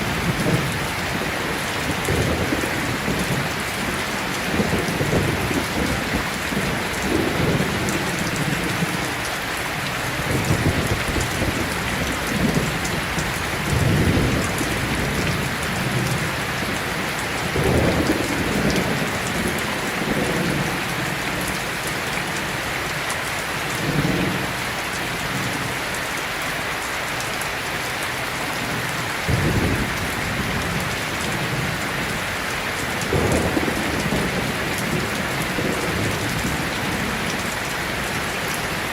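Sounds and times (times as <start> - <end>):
thunder rumbling: 0.0 - 9.1, 10.1 - 21.6, 28.6 - 38.9
heavy rain: 0.0 - 38.9.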